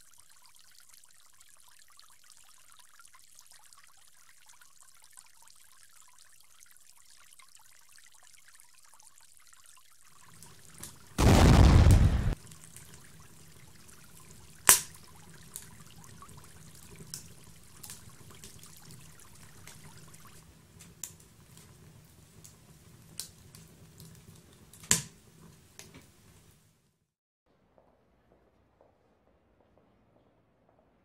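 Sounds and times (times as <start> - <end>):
fire crackling and popping: 10.4 - 12.4, 22.4 - 25.2.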